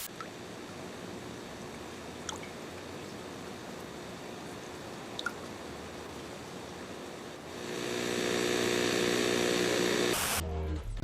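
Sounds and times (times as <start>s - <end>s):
steady rain hiss: 0.0s - 10.4s
water drips: 0.1s - 0.8s, 1.7s - 6.5s.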